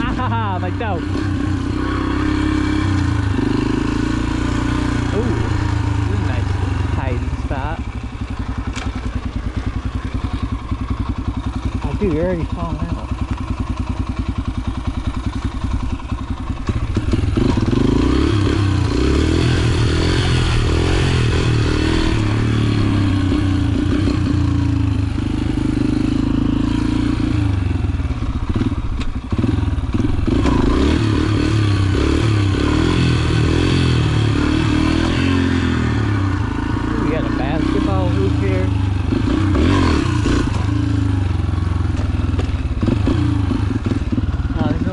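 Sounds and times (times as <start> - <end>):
dirt bike engine running: 0.0 - 44.9.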